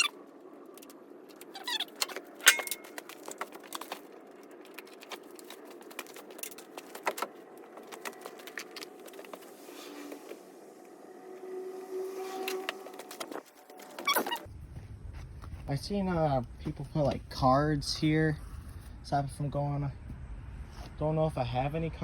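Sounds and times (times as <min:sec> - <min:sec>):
metal parts and tools clinking: 0:00.8 - 0:09.3.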